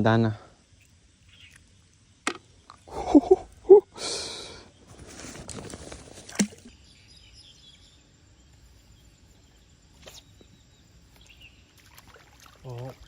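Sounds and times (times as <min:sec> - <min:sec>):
stream ambience: 0:00.6 - 0:06.8, 0:09.9 - 0:13.0.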